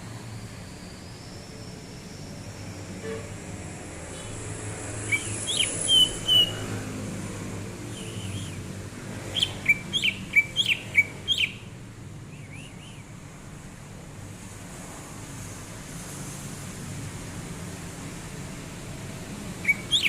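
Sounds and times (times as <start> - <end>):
bird chirping and whistling: 5.0 - 6.7, 7.9 - 11.7, 12.3 - 13.1, 19.6 - 20.0.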